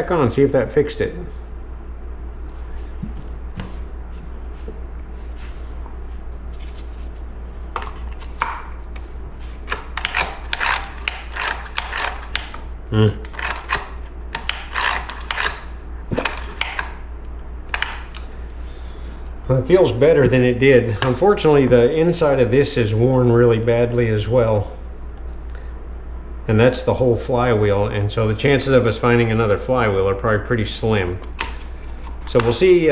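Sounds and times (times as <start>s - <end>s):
recoil starter clicking and ratcheting: 9.7s - 12.6s, 13.3s - 17.0s.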